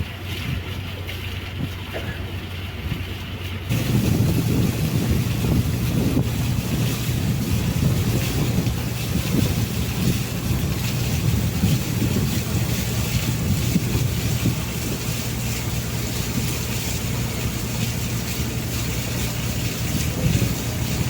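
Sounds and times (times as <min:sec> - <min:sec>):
wind noise: 0:00.0 - 0:02.2, 0:02.8 - 0:21.0
boat engine humming: 0:00.0 - 0:21.0.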